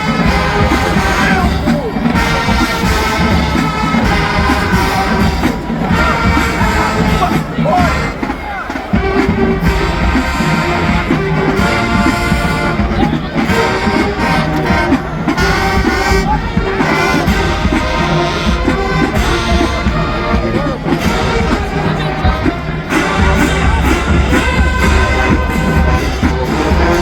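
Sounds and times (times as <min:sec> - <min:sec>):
brass section: 0:00.0 - 0:27.0
marching band playing: 0:00.0 - 0:27.0.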